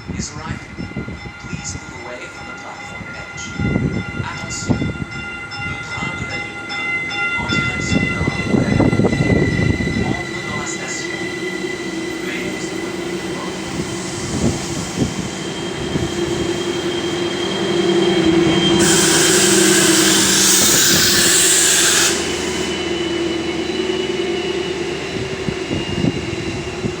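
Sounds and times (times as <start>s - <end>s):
diesel train humming: 0.0s - 27.0s
wind gusting on microphone: 0.0s - 27.0s
loud hiss of air: 18.8s - 23.1s.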